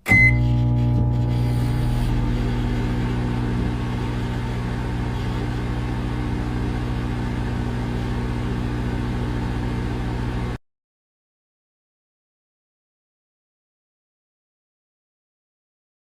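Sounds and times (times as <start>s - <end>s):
cooling fan whirring: 0.0s - 10.6s
microwave electrical hum: 0.0s - 10.6s.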